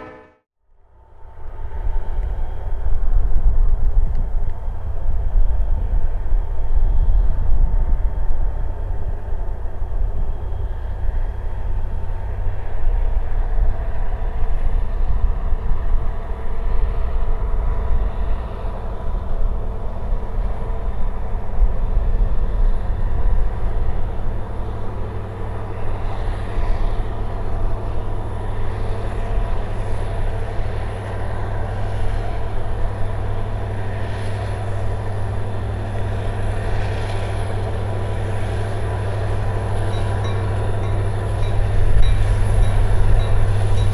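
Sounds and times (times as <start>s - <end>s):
diesel locomotive engine drone: 0.0s - 43.9s
engine whine: 0.0s - 43.9s.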